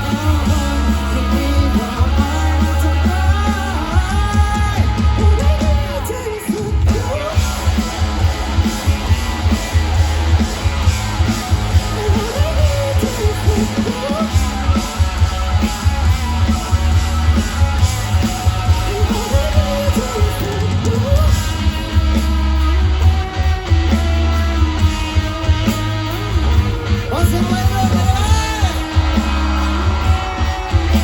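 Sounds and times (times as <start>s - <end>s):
person singing: 0.0s - 8.0s, 11.7s - 15.0s, 18.2s - 22.0s
live rock band: 0.0s - 31.0s.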